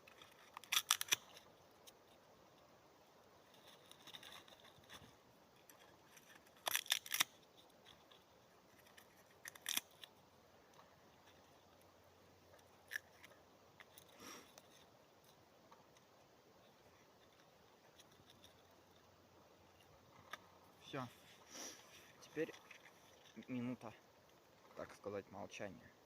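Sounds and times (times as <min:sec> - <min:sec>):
sticks snapping: 0:00.2 - 0:01.4, 0:06.4 - 0:07.4, 0:08.9 - 0:10.1.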